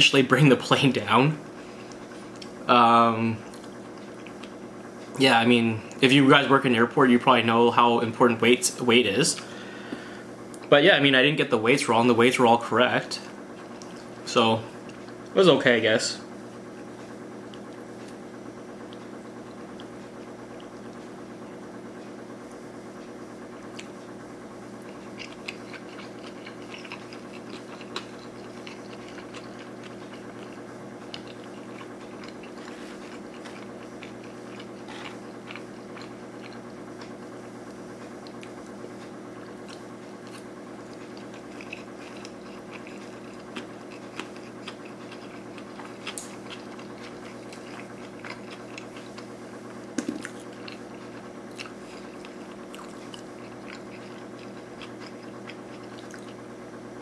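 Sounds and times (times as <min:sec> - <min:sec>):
steady hum: 0:00.0 - 0:57.0
wet chewing mouth clicks: 0:24.8 - 0:38.8, 0:39.4 - 0:49.4, 0:50.0 - 0:56.4.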